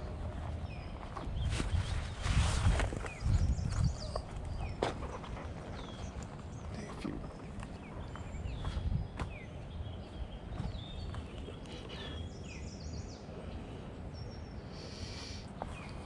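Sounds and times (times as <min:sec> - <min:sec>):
small birds chirping and whistling: 0:00.6 - 0:05.0, 0:05.6 - 0:13.4.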